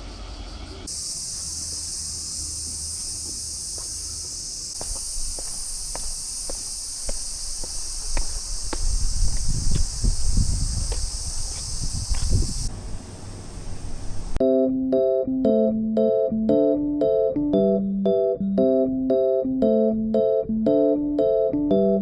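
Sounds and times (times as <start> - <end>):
insect chorus shrilling: 0.9 - 12.7.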